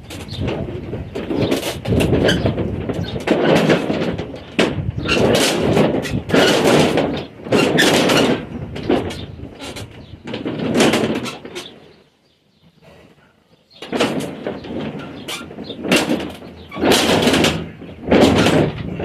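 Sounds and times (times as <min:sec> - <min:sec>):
shutter panels rattling on track: 0:00.0 - 0:12.0, 0:13.8 - 0:19.0.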